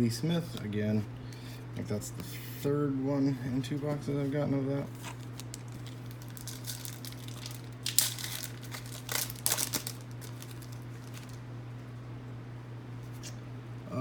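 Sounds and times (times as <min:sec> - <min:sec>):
foil wrapper crinkling: 0:04.8 - 0:11.4.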